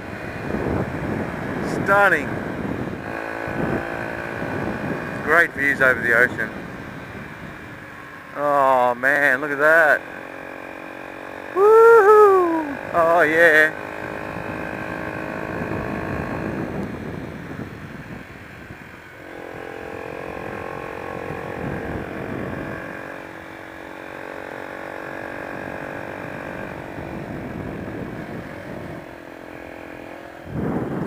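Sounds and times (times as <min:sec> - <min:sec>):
wind rush on microphone: 0:00.0 - 0:08.3, 0:13.9 - 0:23.6, 0:25.0 - 0:31.0
motorcycle engine running: 0:00.0 - 0:31.0.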